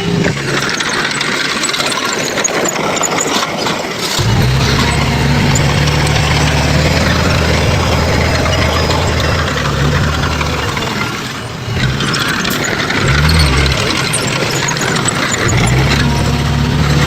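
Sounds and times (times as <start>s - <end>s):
diesel engine droning and clattering: 0.0s - 17.0s.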